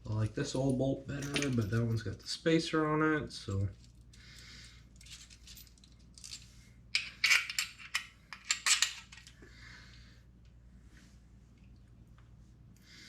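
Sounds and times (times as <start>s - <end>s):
metal hardware clinking: 1.1s - 2.0s, 7.0s - 9.3s.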